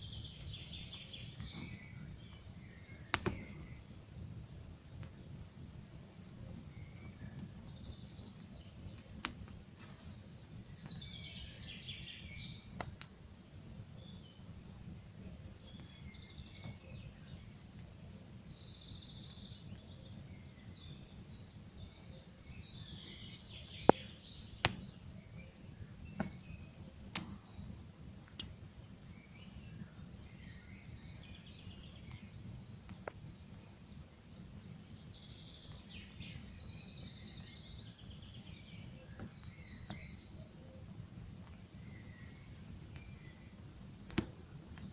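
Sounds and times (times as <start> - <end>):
songbirds singing: 0.0 - 44.9
campfire crackling: 0.2 - 11.0, 12.4 - 15.9.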